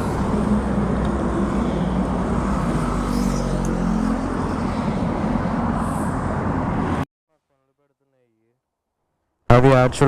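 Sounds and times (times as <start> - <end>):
road traffic engines: 0.0 - 7.1.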